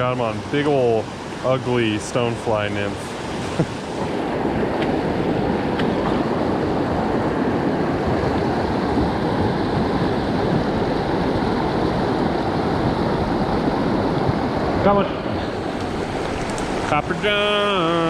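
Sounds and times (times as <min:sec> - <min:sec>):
creek water rushing: 0:15.3 - 0:18.0.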